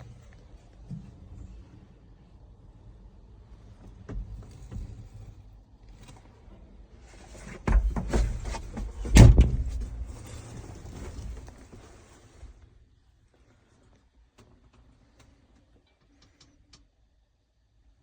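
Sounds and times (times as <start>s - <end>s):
loud knocks and clatter: 7.6s - 10.5s.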